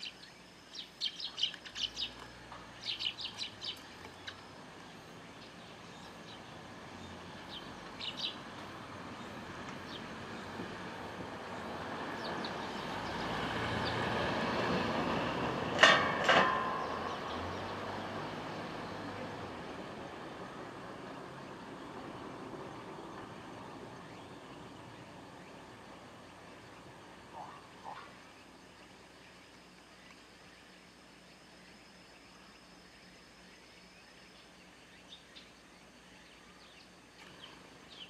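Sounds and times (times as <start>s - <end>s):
faint sparrow chirps: 0.0s - 8.5s, 21.8s - 38.0s
vehicle passing: 4.6s - 28.2s.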